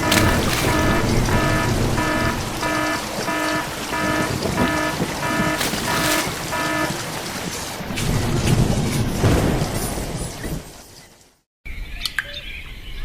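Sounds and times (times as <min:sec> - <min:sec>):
short electronic beeps: 0:00.0 - 0:07.0.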